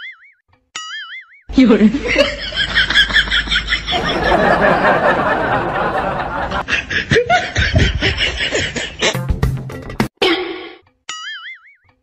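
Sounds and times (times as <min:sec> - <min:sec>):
person giggling: 0:02.0 - 0:09.2.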